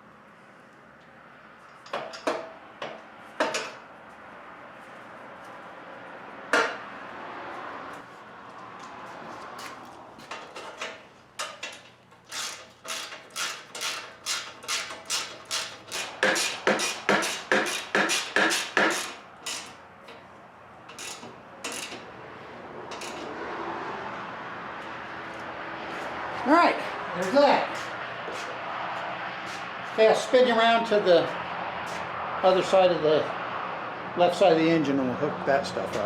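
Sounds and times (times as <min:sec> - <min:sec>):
ratchet wrench clicking: 0:11.4 - 0:19.8, 0:20.9 - 0:22.0.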